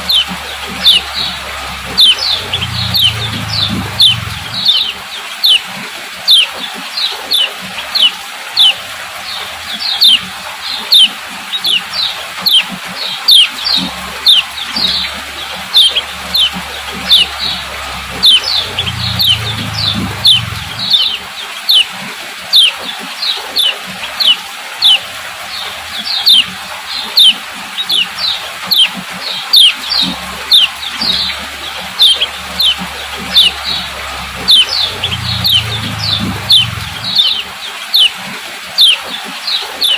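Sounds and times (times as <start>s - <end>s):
low hum: 0.0s - 5.0s, 13.6s - 21.3s, 29.8s - 37.6s
bird calling sharp notes: 0.0s - 5.6s, 13.3s - 21.9s, 27.1s - 38.2s.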